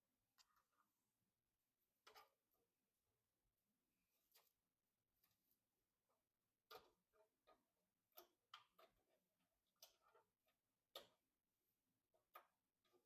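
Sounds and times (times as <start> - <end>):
small clicks and light taps: 1.9 - 2.6, 4.2 - 11.4, 12.1 - 13.0.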